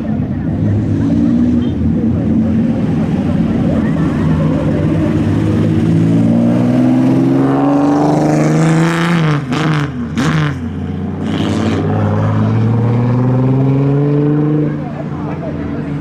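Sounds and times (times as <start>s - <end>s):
rasping exhaust rush: 0.0s - 16.0s
car engine accelerating past: 4.4s - 15.0s.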